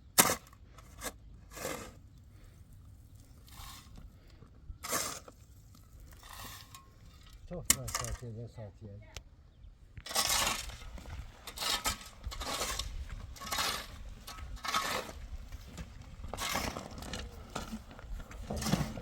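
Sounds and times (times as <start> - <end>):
scraping strokes: 0.2 - 2.0, 10.1 - 17.9.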